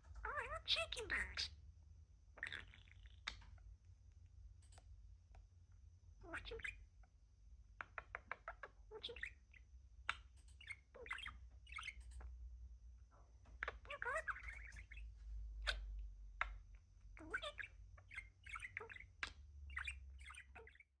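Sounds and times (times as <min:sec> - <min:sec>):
budgie chattering: 0:10.1 - 0:12.3, 0:13.6 - 0:15.0, 0:17.2 - 0:20.8.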